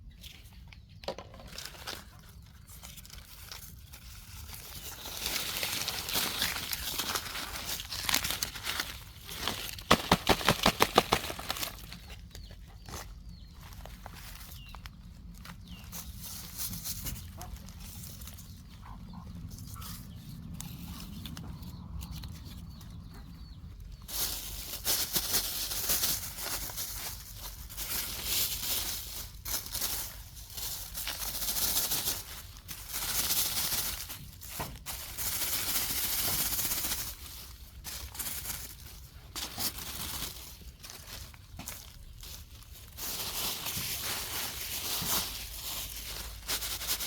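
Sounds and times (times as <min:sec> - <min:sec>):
plastic trash crinkling: 0:01.1 - 0:12.4, 0:24.0 - 0:47.0.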